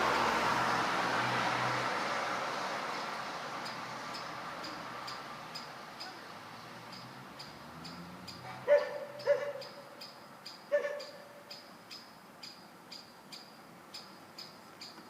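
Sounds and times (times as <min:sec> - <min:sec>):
dog barking: 0:08.4 - 0:09.9, 0:10.7 - 0:11.4.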